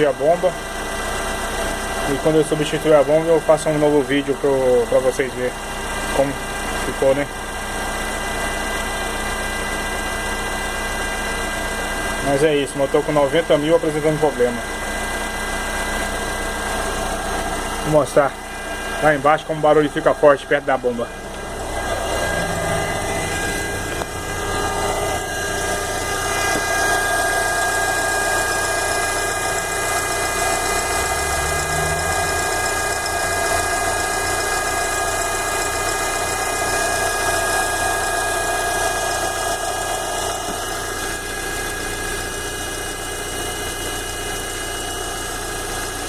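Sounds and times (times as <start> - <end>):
car engine idling: 0.0 - 46.0
steady high whine: 15.4 - 35.6, 36.4 - 43.6.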